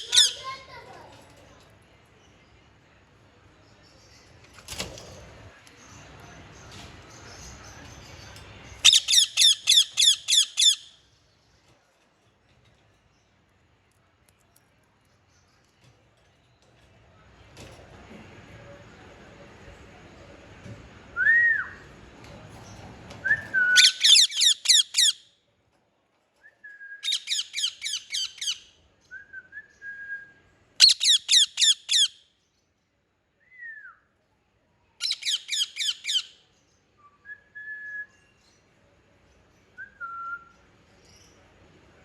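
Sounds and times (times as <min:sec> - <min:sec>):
parrot calling shrilly: 0:00.0 - 0:00.6, 0:08.9 - 0:10.9, 0:23.8 - 0:25.2, 0:27.0 - 0:28.6, 0:30.8 - 0:32.2, 0:35.0 - 0:36.3.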